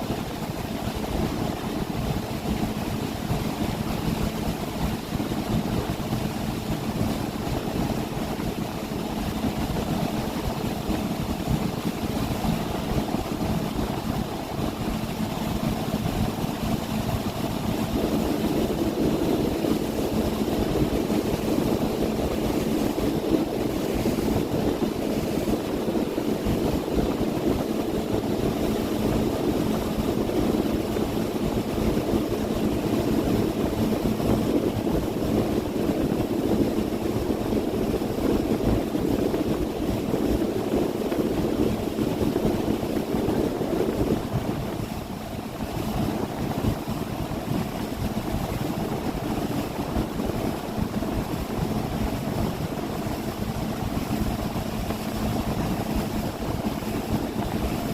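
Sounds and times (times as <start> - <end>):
boat engine droning: 0.0 - 57.9
water noise: 0.0 - 57.9
wind: 0.0 - 57.9.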